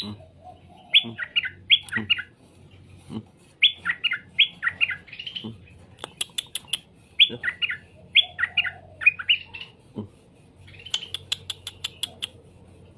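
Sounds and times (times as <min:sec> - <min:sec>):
sharp bird clicks: 0:05.9 - 0:06.9, 0:10.8 - 0:12.4.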